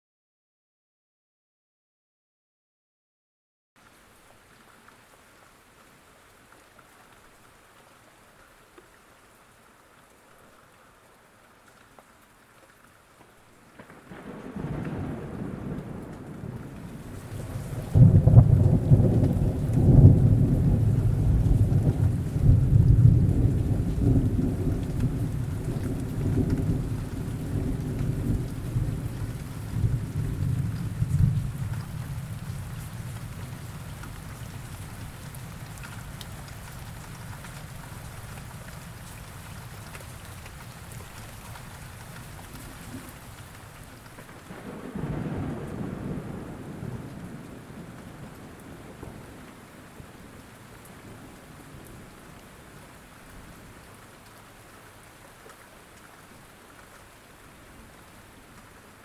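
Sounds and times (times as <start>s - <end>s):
steady rain falling: 3.8s - 59.0s
rolling thunder: 13.9s - 38.7s, 44.1s - 50.4s.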